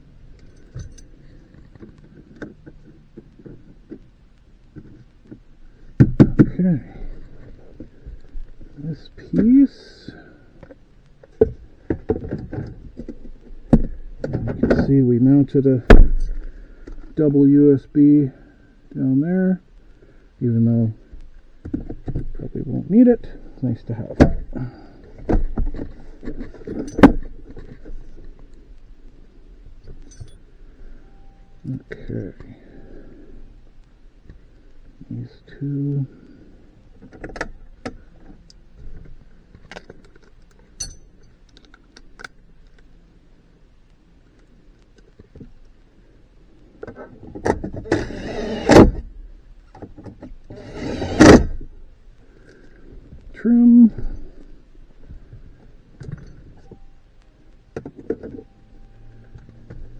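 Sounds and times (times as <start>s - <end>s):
plastic trim scraping and rubbing: 47.5s - 49.0s, 49.8s - 51.6s.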